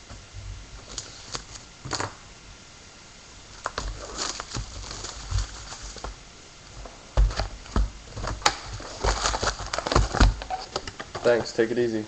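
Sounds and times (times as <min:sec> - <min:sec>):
plastic wrap crinkling: 0:03.5 - 0:11.6
box being handled and opened: 0:07.2 - 0:11.6.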